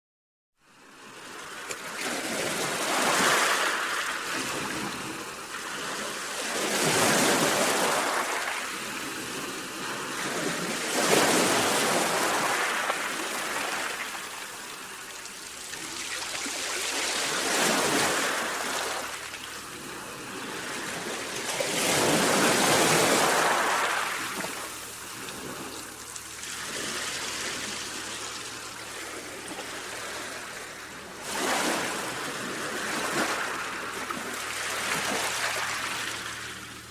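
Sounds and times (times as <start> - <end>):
sea waves breaking on shore: 0.8 - 36.9.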